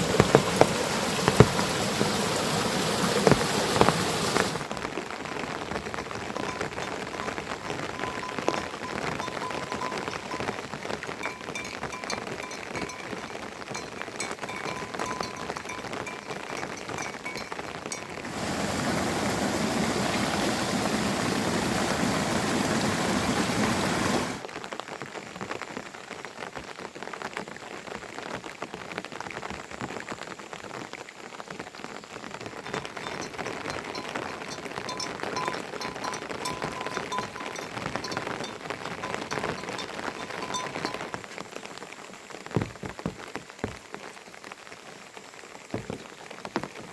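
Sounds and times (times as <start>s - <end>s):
rain pattering: 0.0s - 46.9s.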